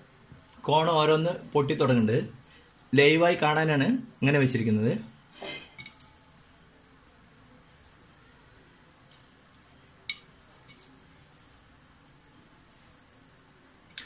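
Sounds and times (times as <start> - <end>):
popcorn popping: 10.0 - 10.9.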